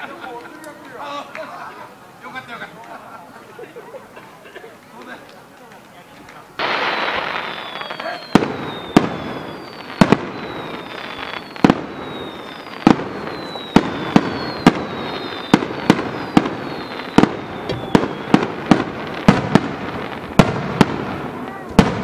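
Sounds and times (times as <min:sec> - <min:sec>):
firework shells bursting: 0:06.6 - 0:22.0
high firework whistles: 0:06.6 - 0:22.0.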